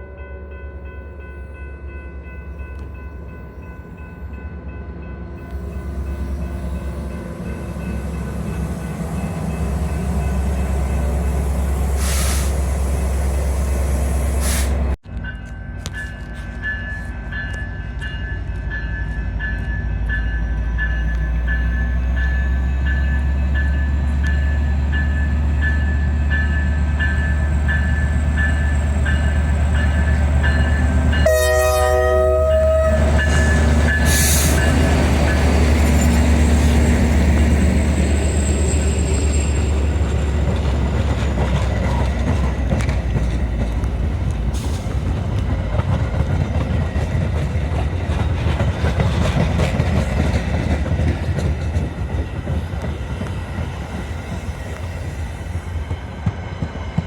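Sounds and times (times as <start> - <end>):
grade-crossing bell dinging: 0.0 - 12.0, 15.0 - 44.5
train rumbling past: 0.0 - 57.0
locomotive horn blast: 31.2 - 34.8.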